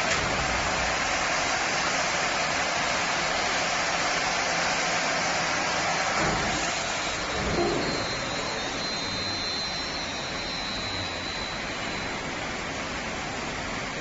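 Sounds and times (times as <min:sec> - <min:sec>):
high whine: 0:05.2 - 0:14.0
wood lathe rushing noise: 0:06.3 - 0:12.4.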